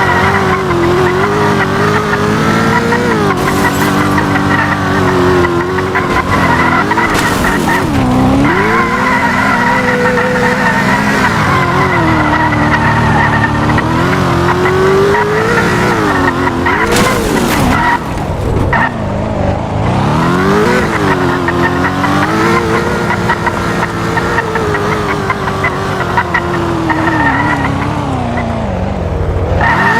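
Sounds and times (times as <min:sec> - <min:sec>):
tyres squealing: 0:00.0 - 0:13.8
car engine revving: 0:00.0 - 0:29.9.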